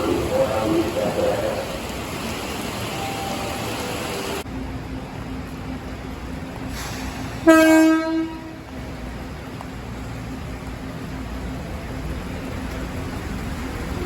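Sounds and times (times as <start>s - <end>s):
station rumble and hiss: 0.0s - 7.7s
train horn: 7.4s - 8.7s.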